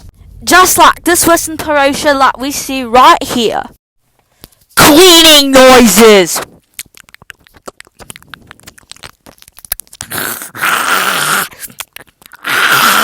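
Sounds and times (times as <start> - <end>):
small crackles and rustles: 6.3 - 10.1, 11.6 - 12.4.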